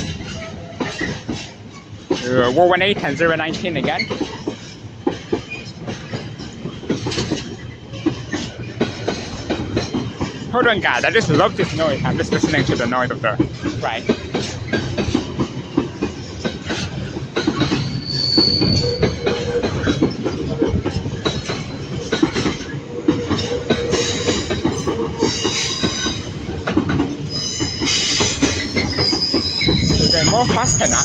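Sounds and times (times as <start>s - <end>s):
diesel locomotive engines rumbling: 0.0s - 31.0s
high wheel squeal: 17.8s - 19.9s, 23.7s - 26.6s, 27.3s - 31.0s.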